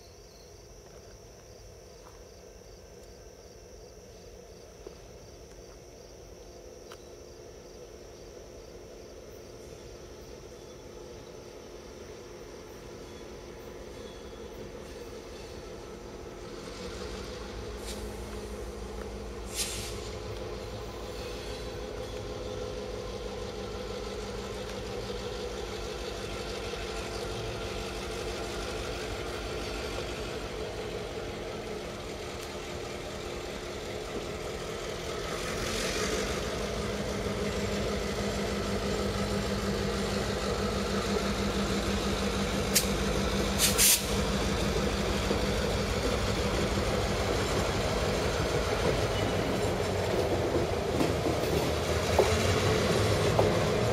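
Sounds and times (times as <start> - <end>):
diesel locomotive engine running: 0.0 - 53.9
brief hisses: 16.6 - 18.7, 19.4 - 20.3, 42.7 - 43.0, 43.6 - 44.2.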